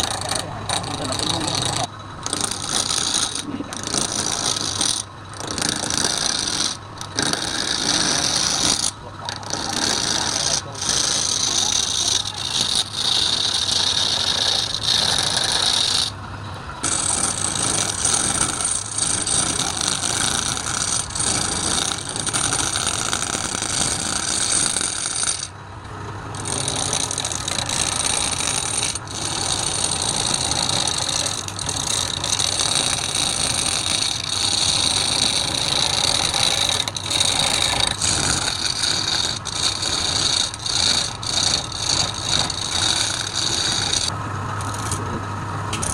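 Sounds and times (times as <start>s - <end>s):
wood lathe tool scraping wood: 0.0s - 45.9s.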